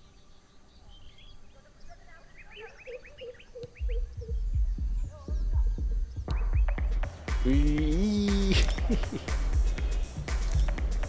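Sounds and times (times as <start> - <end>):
birds chirping: 0.0 - 11.0
thumping bass music beat: 3.8 - 11.0.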